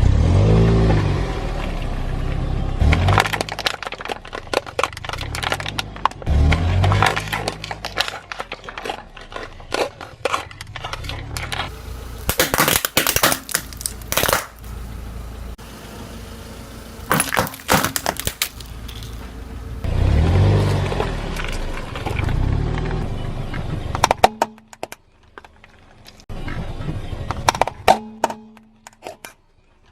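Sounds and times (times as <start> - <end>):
low car rumble: 0.0 - 12.4, 13.5 - 28.9
objects crunching under tyres: 0.7 - 15.6, 17.0 - 29.9
sharp cracks: 2.8 - 14.8, 17.1 - 19.2.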